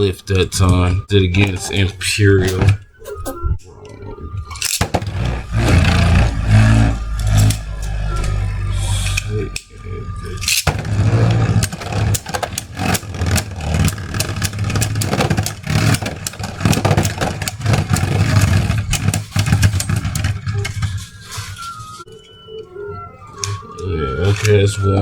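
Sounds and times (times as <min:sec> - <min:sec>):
spinning tops whirring: 0:04.4 - 0:22.1.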